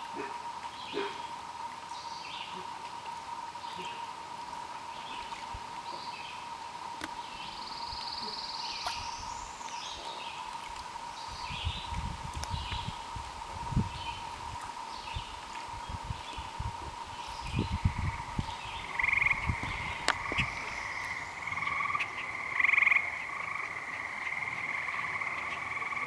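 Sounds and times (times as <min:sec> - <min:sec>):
steady thin hum: 0:00.0 - 0:26.0
small birds chirping: 0:14.9 - 0:26.0.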